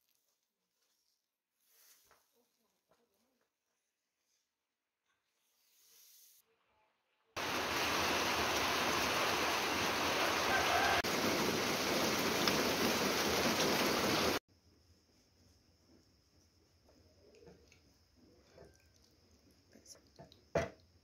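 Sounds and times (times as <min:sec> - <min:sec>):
rain falling on foliage: 0:07.4 - 0:14.4.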